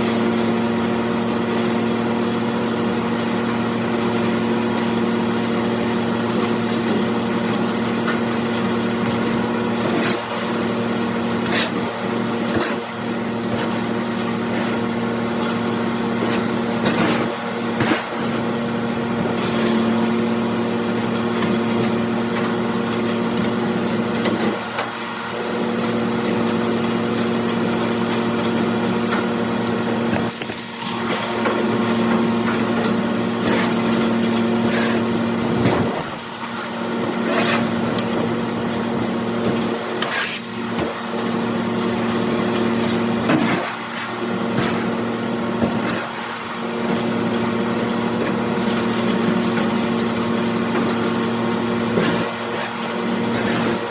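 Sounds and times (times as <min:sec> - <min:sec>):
tractor driving grinder-mixer: 0:00.0 - 0:53.9.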